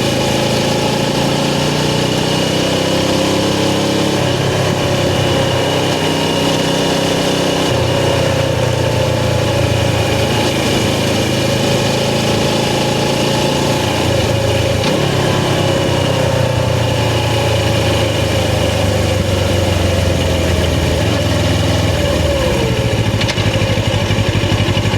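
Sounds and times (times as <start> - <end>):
motorcycle engine running at low revs: 0.0 - 24.9.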